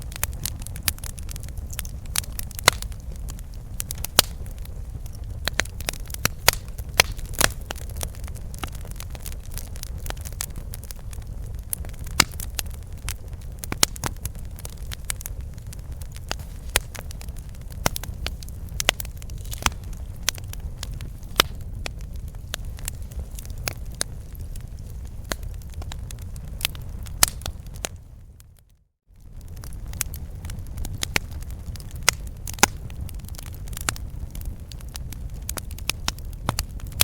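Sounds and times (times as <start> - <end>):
campfire crackling and snapping: 0.0 - 37.0
low rumble of flames: 0.0 - 37.0.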